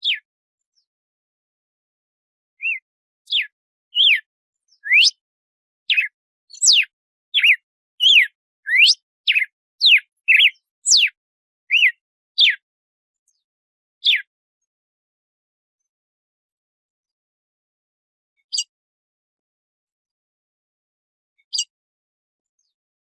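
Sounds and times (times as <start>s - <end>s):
bird whistling gliding notes: 4.8s - 5.2s, 5.9s - 11.1s.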